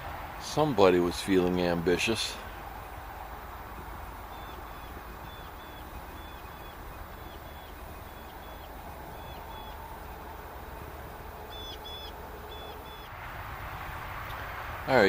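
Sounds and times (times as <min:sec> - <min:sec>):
outdoor background noise: 0:00.0 - 0:15.0
small bird calling: 0:02.3 - 0:13.1.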